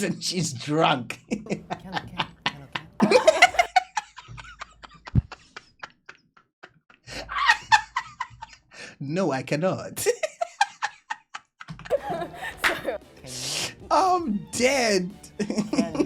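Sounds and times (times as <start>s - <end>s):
man laughing hard: 3.0s - 6.2s, 7.1s - 8.6s, 10.0s - 12.8s.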